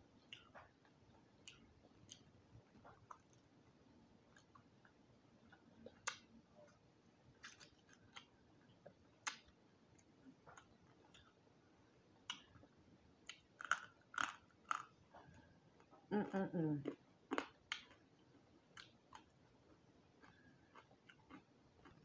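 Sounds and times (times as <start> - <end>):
person chewing: 0.2 - 3.5, 7.4 - 8.3, 13.3 - 15.9, 18.7 - 22.0.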